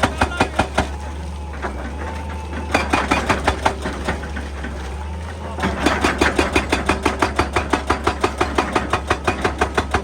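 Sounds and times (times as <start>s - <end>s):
hydraulic breaker hammering rock: 0.0s - 1.0s, 2.5s - 4.2s, 5.6s - 10.0s
diesel engine humming: 0.0s - 10.0s.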